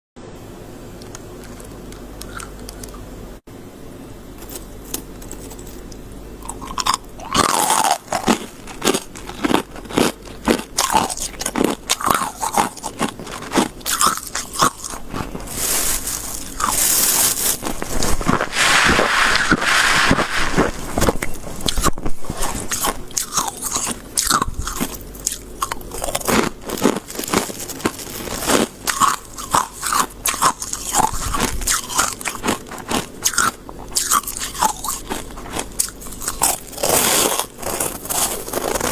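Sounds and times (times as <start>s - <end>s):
chewing crunchy frost: 1.4s - 3.0s, 4.4s - 38.9s.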